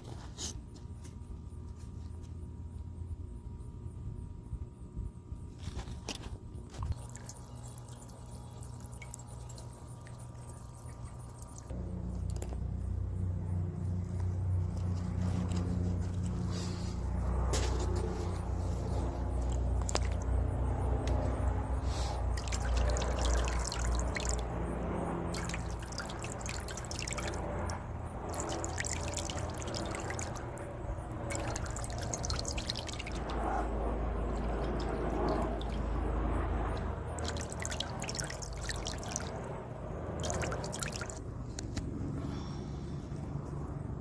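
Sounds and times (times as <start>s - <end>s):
fountain water splashing: 6.9s - 11.7s, 21.9s - 24.6s, 25.2s - 36.0s, 37.1s - 39.4s, 40.2s - 41.2s
low rumble: 11.7s - 38.6s.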